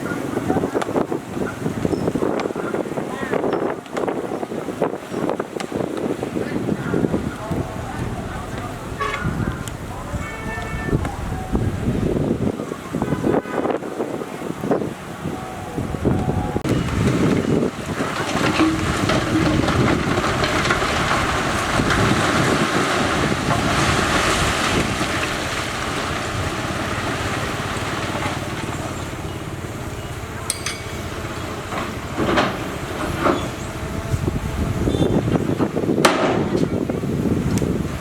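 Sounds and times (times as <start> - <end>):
wind on microphone: 0.0 - 38.0
heavy machinery running: 15.8 - 35.7.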